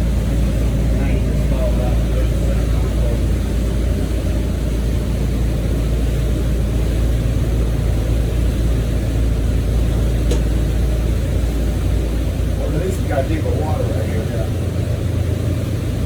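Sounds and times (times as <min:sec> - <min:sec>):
motorboat engine rumbling: 0:00.0 - 0:16.0.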